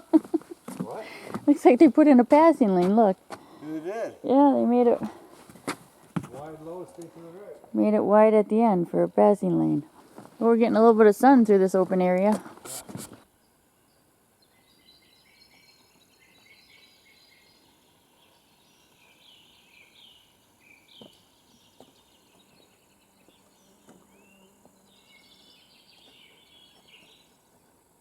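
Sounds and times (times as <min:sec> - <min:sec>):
songbird chirps and falling calls: 0:13.4 - 0:27.6.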